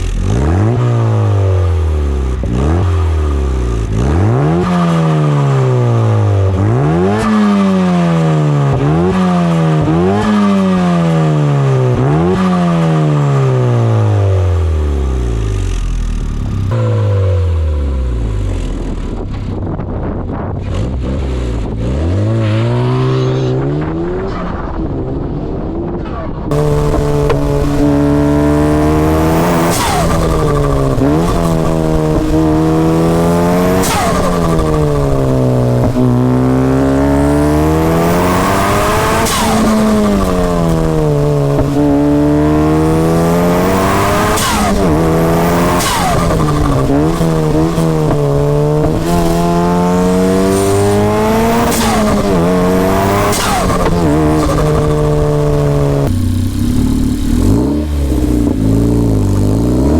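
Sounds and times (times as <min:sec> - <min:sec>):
car engine revving: 0:00.0 - 0:59.9
gear changes: 0:18.4 - 0:59.9.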